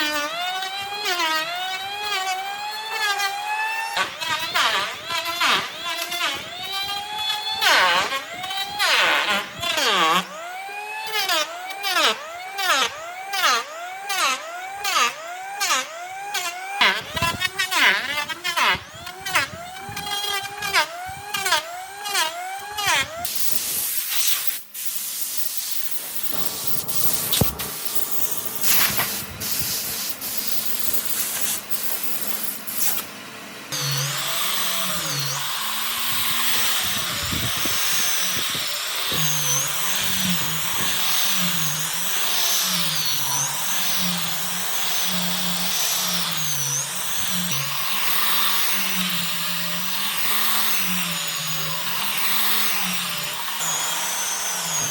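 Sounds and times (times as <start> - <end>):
power tool working on wood: 0.0 - 54.9.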